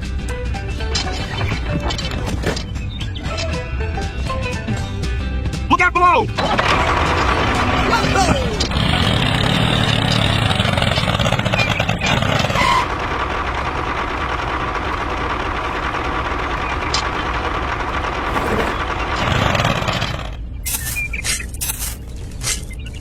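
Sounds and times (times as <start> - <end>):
engine running steadily: 6.3 - 22.6.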